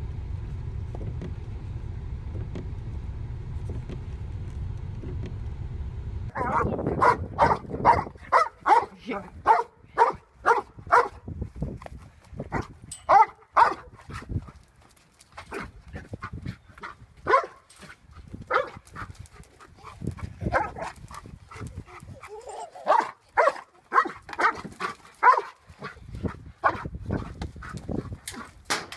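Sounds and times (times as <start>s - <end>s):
dog barking: 6.3s - 11.2s, 12.5s - 14.0s, 16.8s - 17.7s, 18.5s - 19.0s, 20.4s - 21.6s, 22.6s - 26.0s, 26.6s - 27.3s.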